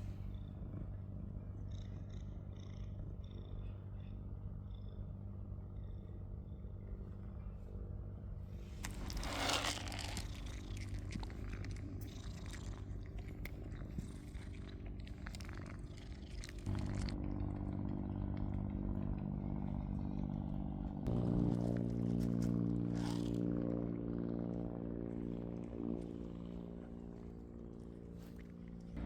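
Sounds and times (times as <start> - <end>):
cat purring: 0.0 - 29.0
dry cat food crunching: 8.6 - 19.5, 21.1 - 23.7.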